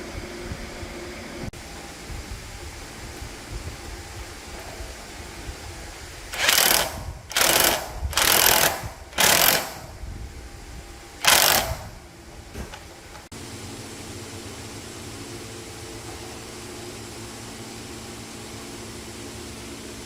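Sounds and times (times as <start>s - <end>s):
welding crackle bursts: 6.3s - 10.0s, 11.2s - 12.0s.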